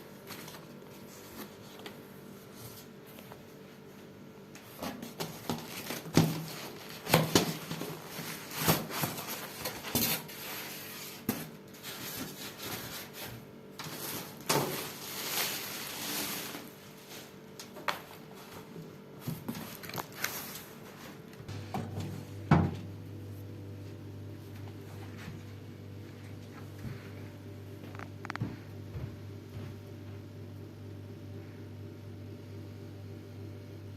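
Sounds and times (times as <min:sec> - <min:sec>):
packaging rustling: 0:05.1 - 0:10.8, 0:13.8 - 0:20.9.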